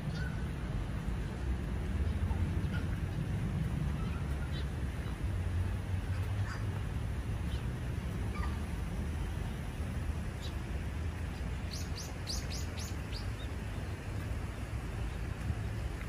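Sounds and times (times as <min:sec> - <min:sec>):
low outdoor rumble: 0:00.0 - 0:16.0
songbird calling: 0:11.7 - 0:13.9.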